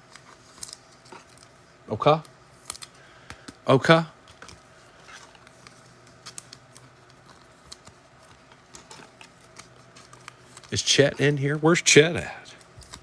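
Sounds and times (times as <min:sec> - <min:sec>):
low steady hum: 0:00.0 - 0:13.0
cards clicking and tapping: 0:02.7 - 0:03.6.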